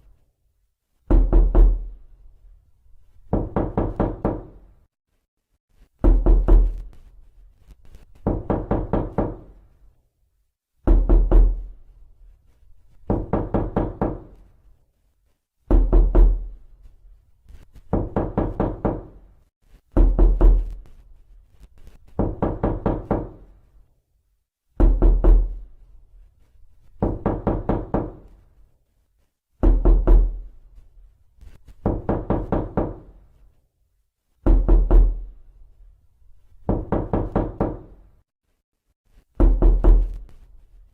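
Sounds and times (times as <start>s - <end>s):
knocking on a door: 1.1s - 2.0s, 3.3s - 4.6s, 6.0s - 6.9s, 8.2s - 9.6s, 10.8s - 11.8s, 13.0s - 14.4s, 15.7s - 16.5s, 17.9s - 19.2s, 19.9s - 20.8s, 22.2s - 23.4s, 24.7s - 25.6s, 27.0s - 28.3s, 29.6s - 30.5s, 31.8s - 33.2s, 34.4s - 35.3s, 36.6s - 38.0s, 39.4s - 40.2s.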